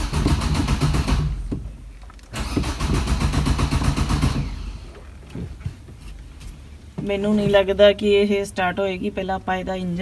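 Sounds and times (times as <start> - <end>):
starter motor cranking engine: 0.0 - 1.6, 2.2 - 5.2.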